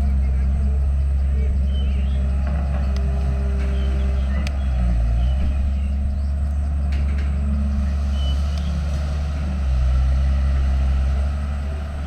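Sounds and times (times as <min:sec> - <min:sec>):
heavy machinery diesel engine: 0:00.0 - 0:12.0.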